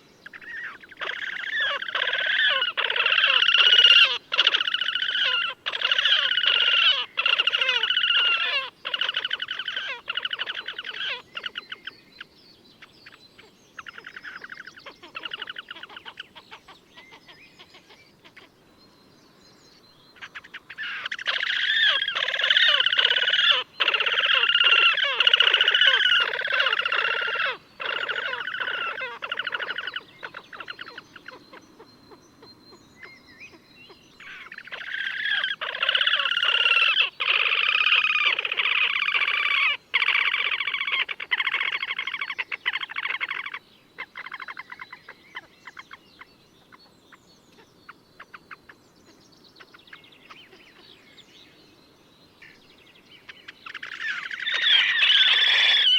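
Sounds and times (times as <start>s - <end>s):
grebe trilling calls: 0.3s - 11.9s, 13.8s - 18.5s, 20.2s - 32.5s, 34.2s - 46.0s, 53.4s - 55.9s.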